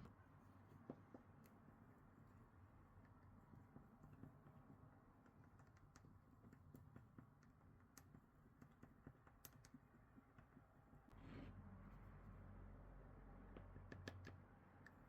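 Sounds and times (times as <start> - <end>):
faint light clicks and ticks: 0.8 - 11.2, 13.4 - 15.0.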